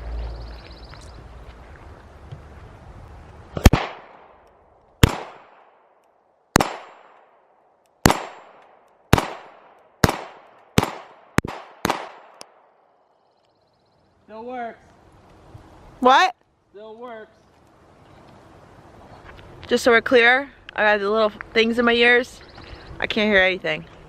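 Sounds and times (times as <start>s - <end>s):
pistol shots with echo: 3.6s - 4.3s, 5.0s - 5.8s, 6.6s - 7.3s, 8.0s - 12.7s.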